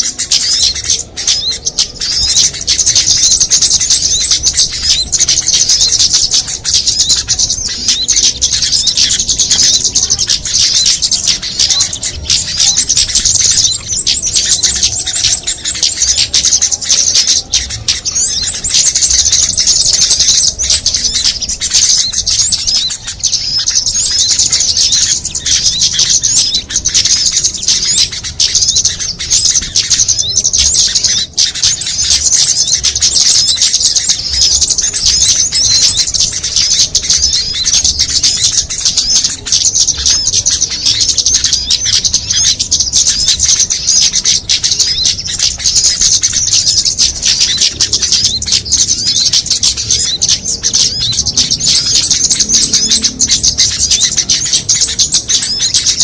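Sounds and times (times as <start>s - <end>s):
chorus of songbirds chirping: 0.0s - 56.0s.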